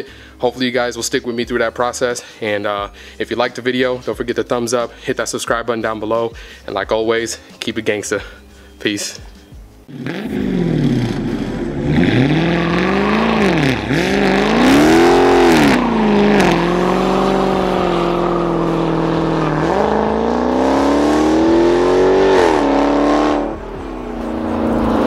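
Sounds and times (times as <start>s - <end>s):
engine revving hard: 9.9s - 25.0s
tires spinning: 9.9s - 25.0s.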